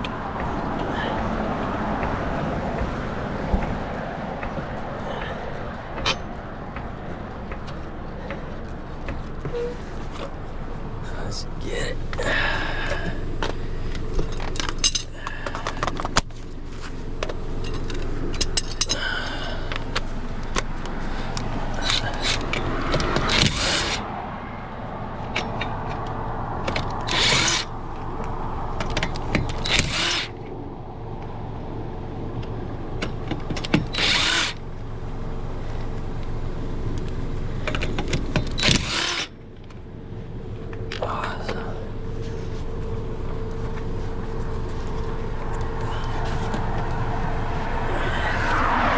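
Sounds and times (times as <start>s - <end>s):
steady low hum: 0.0s - 48.9s
tools clicking and knocking: 4.4s - 6.9s, 13.4s - 16.3s, 17.2s - 19.1s, 21.4s - 24.0s, 25.3s - 27.7s, 28.8s - 30.4s, 37.6s - 39.8s
impact wrench running: 21.7s - 24.0s, 27.0s - 27.7s, 29.5s - 30.4s, 33.8s - 34.6s, 38.3s - 39.4s.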